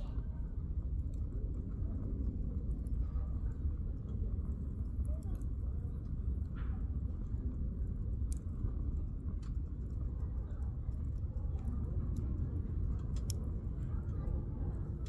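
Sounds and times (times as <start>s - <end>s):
steady low rumble: 0.0s - 15.0s
campfire crackling and popping: 10.6s - 15.0s.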